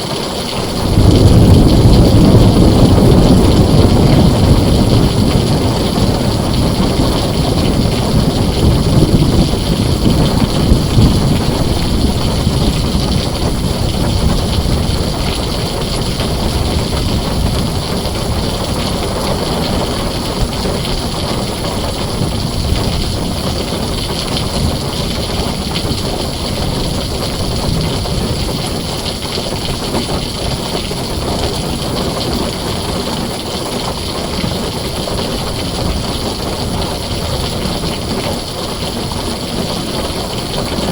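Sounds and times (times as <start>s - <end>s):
deep rumble of thunder: 0.0s - 40.9s
heavy rain on a tin roof: 0.0s - 40.9s.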